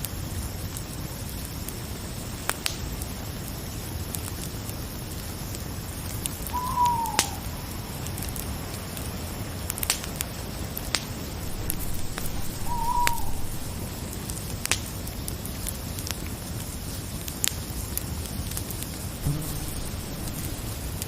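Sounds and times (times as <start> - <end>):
campfire crackling: 0.2 - 21.0
owl hooting: 6.5 - 7.6, 11.4 - 13.9, 19.2 - 21.0.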